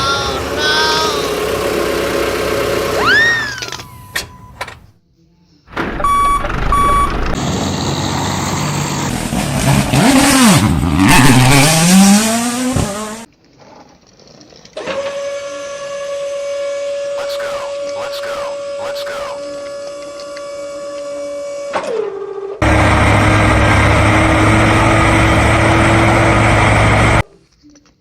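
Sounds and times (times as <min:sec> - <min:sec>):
engine revving: 0:00.0 - 0:03.2, 0:06.1 - 0:13.3, 0:22.6 - 0:27.3
sliding whistle: 0:03.0 - 0:04.3
short beeps: 0:06.0 - 0:07.2.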